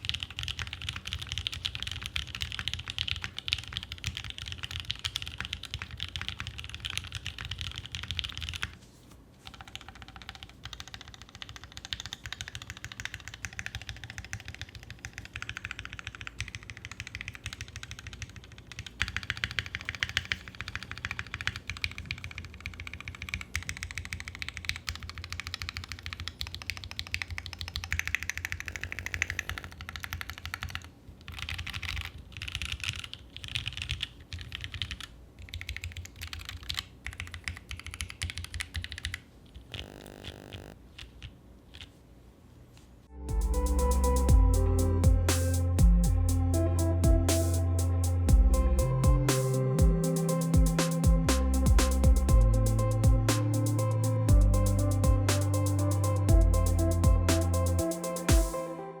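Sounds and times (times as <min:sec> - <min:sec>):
fast typing on mechanical keyboard: 0:00.0 - 0:08.8, 0:09.4 - 0:40.0.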